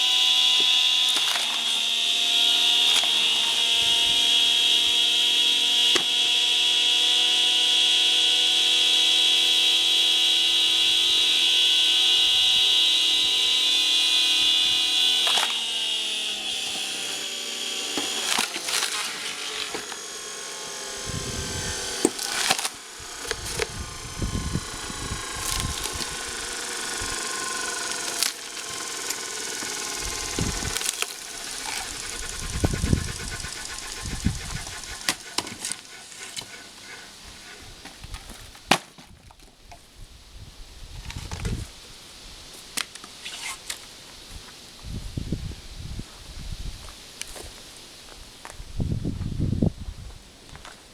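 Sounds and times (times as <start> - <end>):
motor whining: 0.0 - 38.4
wood cracking and thudding: 21.5 - 23.9, 25.1 - 26.3, 27.0 - 32.5.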